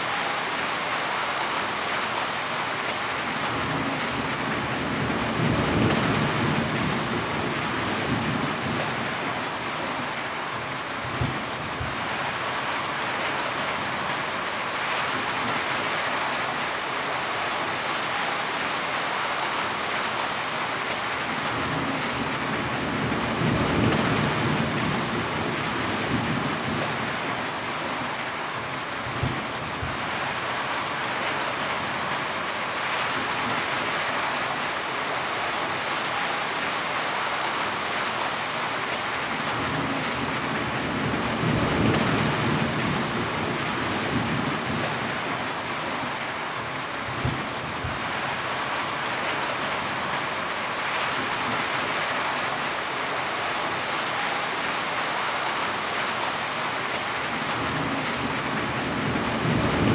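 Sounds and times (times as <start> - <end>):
heavy rain hissing: 0.0 - 8.8, 30.4 - 45.6.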